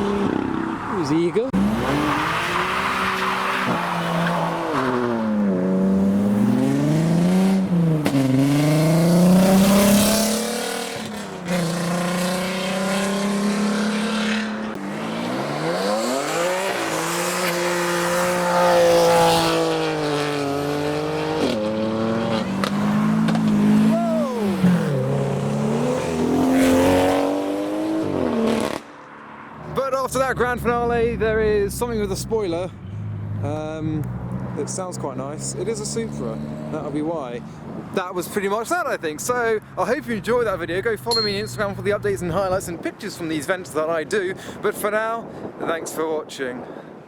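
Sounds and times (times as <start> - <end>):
car engine revving hard: 1.6 - 28.9.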